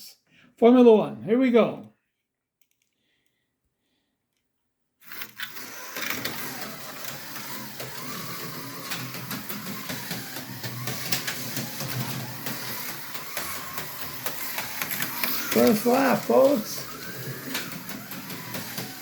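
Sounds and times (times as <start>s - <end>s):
slot car motor whirring: 5.0s - 19.0s
slot car rattling and clicking: 5.0s - 19.0s.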